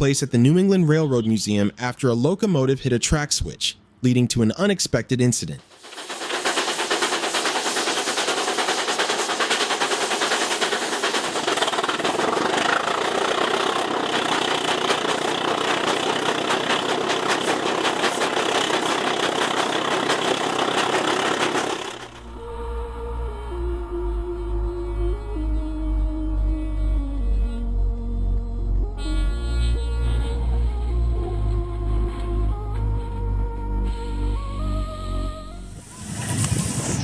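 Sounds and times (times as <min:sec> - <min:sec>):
locomotive engine clattering: 0:05.6 - 0:22.3.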